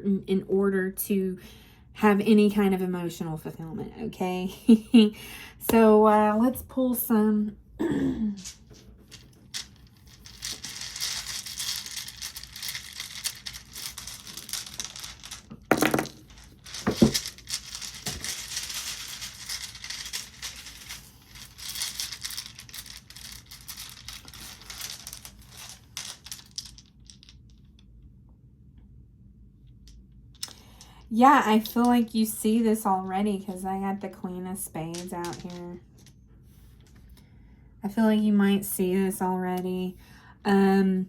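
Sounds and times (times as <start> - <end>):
cards being shuffled: 8.4 - 27.2, 34.9 - 36.1.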